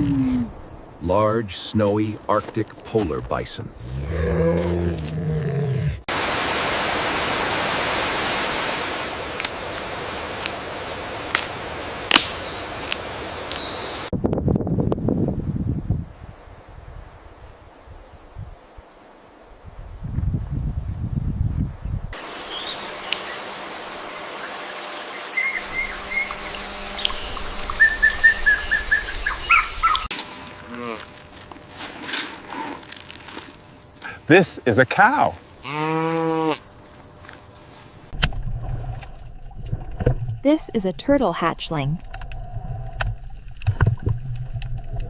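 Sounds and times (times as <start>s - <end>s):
outdoor background hiss: 0.0s - 39.4s
steady rushing hiss: 22.2s - 35.6s
bird chirping: 25.2s - 30.1s.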